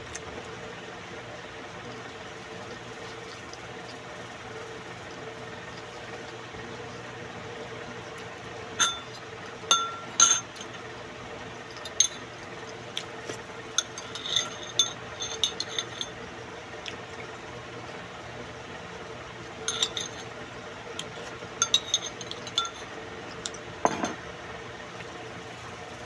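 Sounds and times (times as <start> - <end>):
steady low hum: 1.9 - 26.0
utensils clinking against dishes: 8.8 - 10.8, 11.7 - 12.3, 13.2 - 16.2, 19.6 - 20.4, 21.0 - 24.2.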